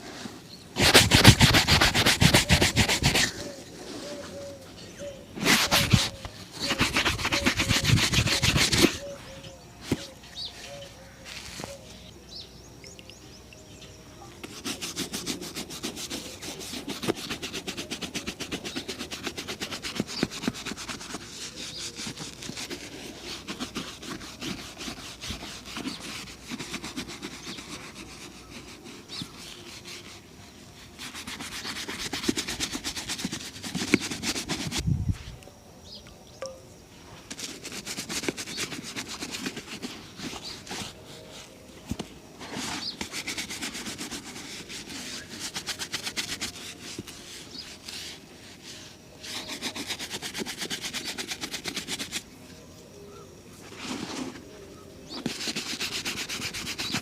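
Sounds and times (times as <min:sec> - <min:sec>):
shoe polishing strokes: 0:00.0 - 0:04.6, 0:05.4 - 0:12.1, 0:14.4 - 0:34.8, 0:37.3 - 0:52.3, 0:53.6 - 0:54.5, 0:55.1 - 0:57.0.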